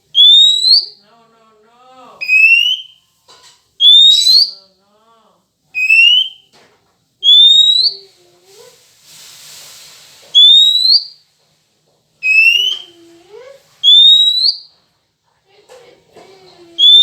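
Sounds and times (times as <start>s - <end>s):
rising bird whistles: 0.1s - 1.0s, 2.2s - 3.0s, 3.8s - 4.6s, 5.8s - 6.5s, 7.2s - 8.0s, 10.4s - 11.2s, 12.2s - 13.0s, 13.8s - 14.7s, 16.8s - 17.0s
soft hiss: 1.0s - 16.8s.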